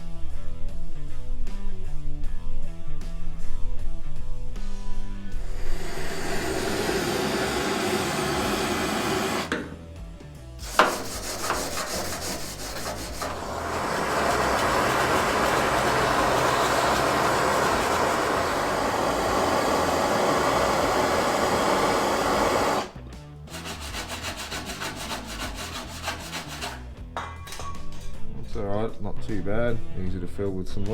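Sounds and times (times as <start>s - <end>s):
abrasive tool scraping steel: 5.3s - 9.6s, 10.6s - 27.0s.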